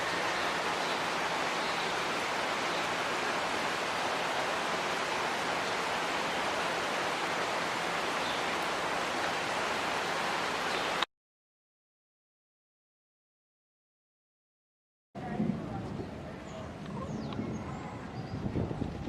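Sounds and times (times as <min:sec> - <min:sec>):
heavy rain pouring: 0:00.0 - 0:11.1.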